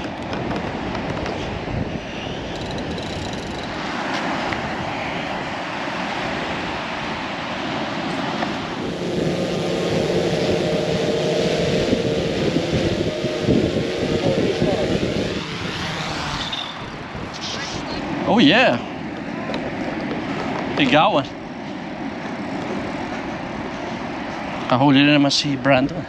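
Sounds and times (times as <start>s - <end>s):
wind: 0.0s - 26.0s
engine drone: 1.3s - 18.3s
surf rushing: 1.4s - 19.4s.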